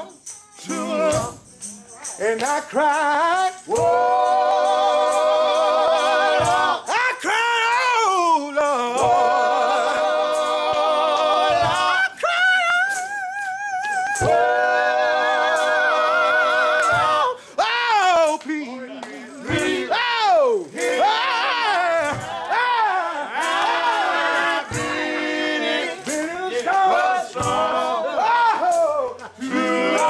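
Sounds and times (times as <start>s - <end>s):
gospel singing with vibrato: 0.0s - 30.0s
singer breaths: 17.4s - 17.6s.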